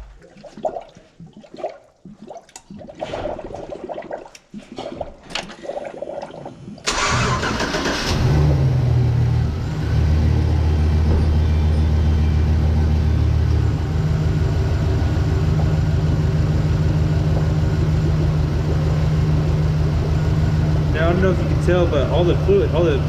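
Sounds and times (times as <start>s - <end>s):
truck engine cranking and running: 6.9s - 23.0s.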